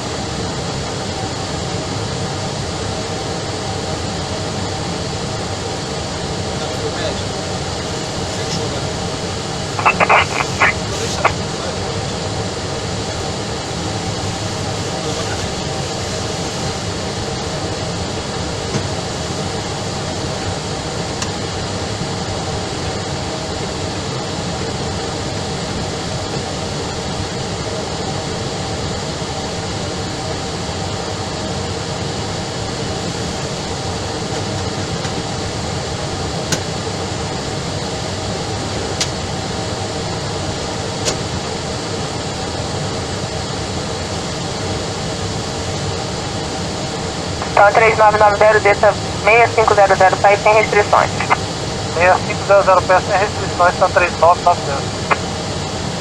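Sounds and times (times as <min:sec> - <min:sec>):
radio static hiss: 0:06.6 - 0:17.4, 0:47.2 - 0:55.8.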